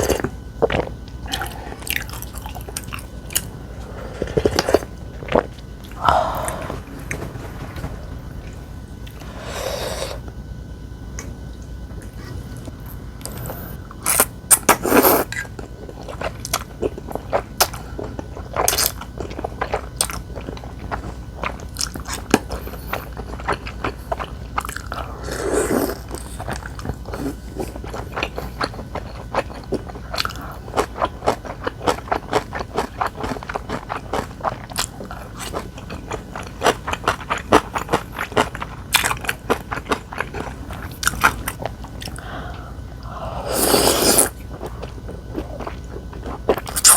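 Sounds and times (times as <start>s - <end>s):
person chewing crunchy food: 13.2s - 46.9s.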